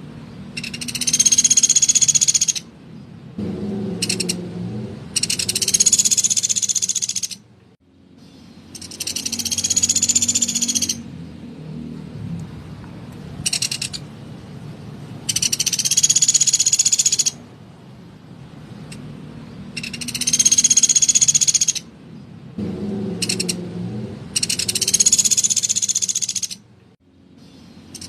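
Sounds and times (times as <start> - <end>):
woodpecker rattling calls: 0.5 - 2.7, 3.8 - 4.5, 5.1 - 7.5, 8.2 - 11.1, 13.4 - 14.1, 15.2 - 17.4, 19.7 - 22.0, 23.0 - 23.7, 24.3 - 26.7, 27.4 - 28.0.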